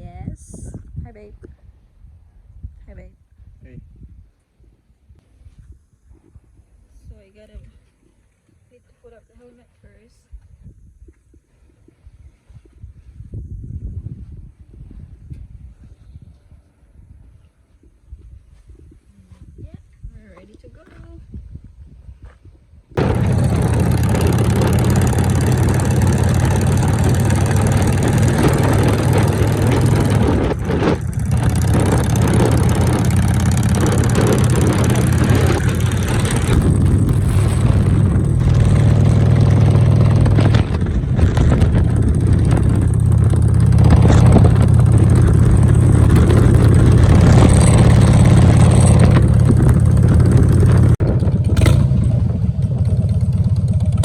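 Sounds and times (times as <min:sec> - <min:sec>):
motorcycle engine running: 0:23.0 - 0:54.0.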